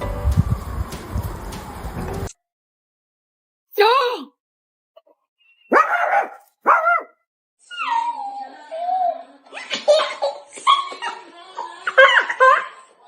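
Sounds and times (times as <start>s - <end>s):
dog barking: 5.7s - 7.2s.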